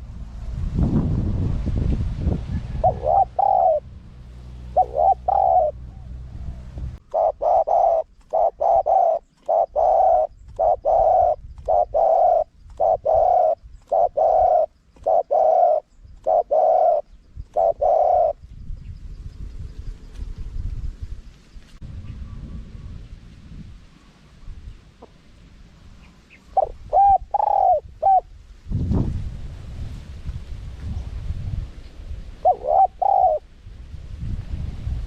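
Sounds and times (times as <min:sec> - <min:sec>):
low rumble: 0:00.0 - 0:07.1, 0:18.7 - 0:26.0
dove cooing: 0:02.5 - 0:03.9, 0:04.5 - 0:18.4, 0:26.3 - 0:28.3, 0:32.4 - 0:33.5.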